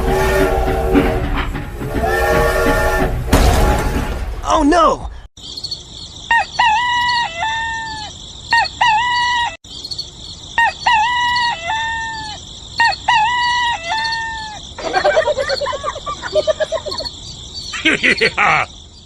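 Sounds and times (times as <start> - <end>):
rooster crowing: 6.3 - 8.1, 10.6 - 15.2.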